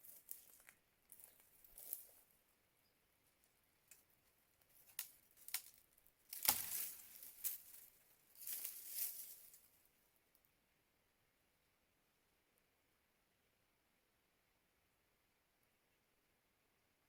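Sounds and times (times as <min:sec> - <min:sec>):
crinkly rustling: 0:00.0 - 0:02.3, 0:03.4 - 0:09.8.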